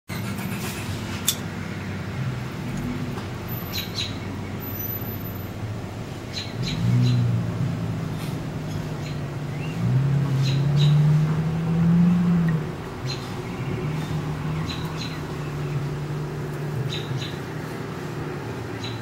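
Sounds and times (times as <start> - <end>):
low steady engine hum: 0.1 - 19.0
high bird chirps: 16.9 - 17.4.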